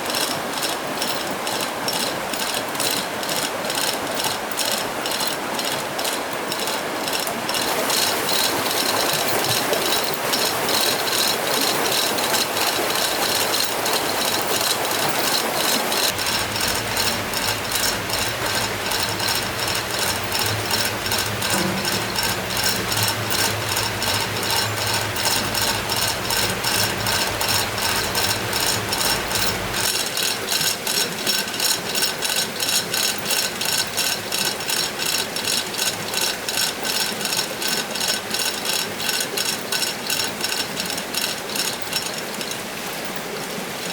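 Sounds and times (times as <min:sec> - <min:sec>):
ratchet clicking rapidly: 0:00.0 - 0:43.1
low steady hum: 0:15.8 - 0:29.9.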